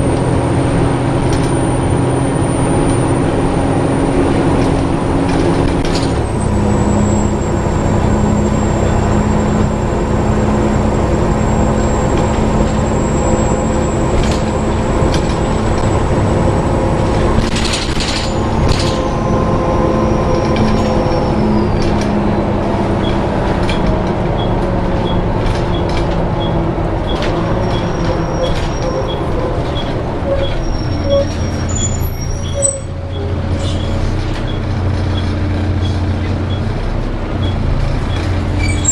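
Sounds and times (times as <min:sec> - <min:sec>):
bus engine running: 0:00.0 - 0:38.9
high-pitched squeal: 0:06.3 - 0:23.8, 0:26.4 - 0:35.2, 0:38.6 - 0:38.9.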